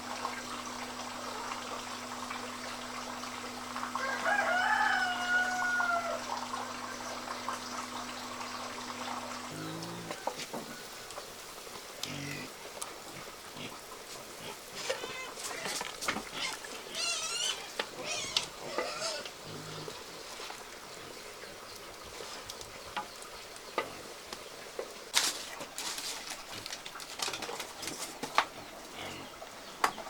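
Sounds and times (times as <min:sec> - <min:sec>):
food sizzling in a frying pan: 0:00.0 - 0:12.6.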